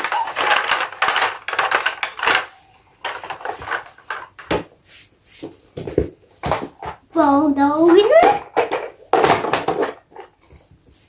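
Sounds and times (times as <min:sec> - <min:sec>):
plastic toy vehicles clattering: 0:00.0 - 0:04.6, 0:07.8 - 0:10.6.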